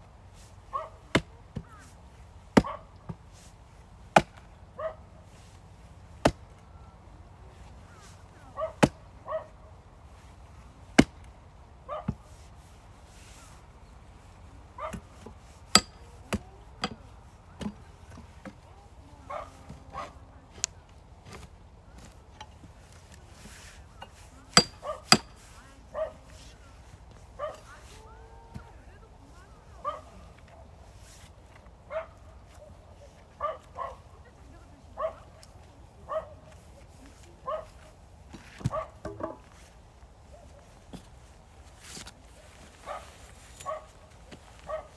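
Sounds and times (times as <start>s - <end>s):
firewood being split: 0.1s - 4.7s, 5.4s - 6.8s, 7.6s - 9.3s, 9.9s - 12.6s, 13.6s - 19.0s, 19.6s - 29.2s, 37.8s - 40.2s
dog barking: 0.7s - 1.0s, 2.6s - 2.9s, 4.8s - 5.1s, 8.6s - 9.6s, 11.9s - 12.2s, 14.8s - 15.0s, 19.2s - 20.2s, 24.6s - 25.2s, 25.9s - 26.4s, 27.4s - 27.8s, 29.8s - 30.7s, 31.9s - 32.8s, 33.4s - 34.2s, 35.0s - 35.4s, 36.1s - 36.5s, 37.4s - 37.8s, 38.7s - 39.0s, 42.8s - 44.0s, 44.6s - 44.9s
knock: 39.0s - 39.4s.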